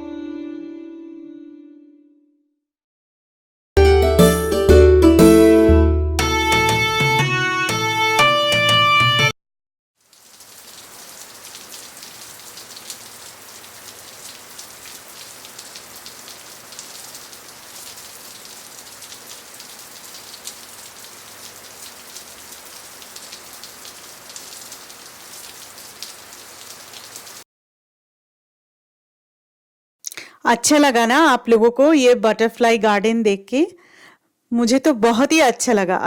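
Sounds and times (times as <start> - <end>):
background music: 0.0 - 2.3, 3.8 - 9.3
falling water pattering: 10.0 - 27.4.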